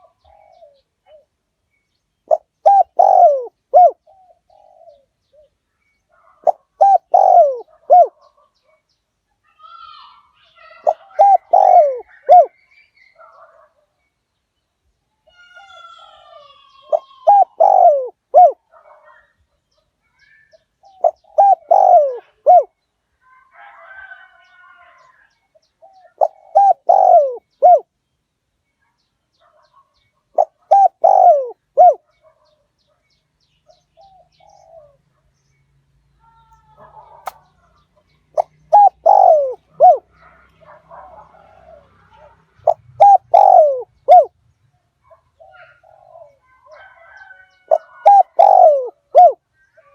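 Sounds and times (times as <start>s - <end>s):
dove cooing: 0.0s - 1.3s, 2.3s - 8.4s, 9.6s - 12.6s, 15.4s - 19.2s, 20.3s - 22.8s, 25.8s - 27.9s, 30.4s - 32.4s, 34.0s - 35.0s, 38.3s - 44.4s, 45.1s - 49.9s.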